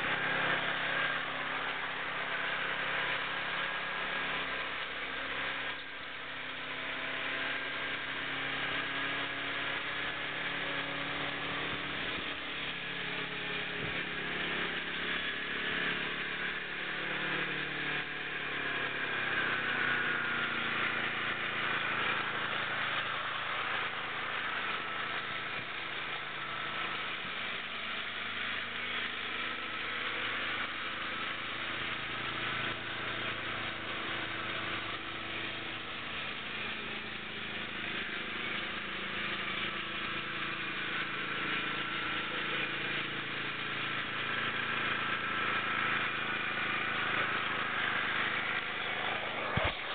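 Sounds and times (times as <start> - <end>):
small engine running: 0.0 - 49.9.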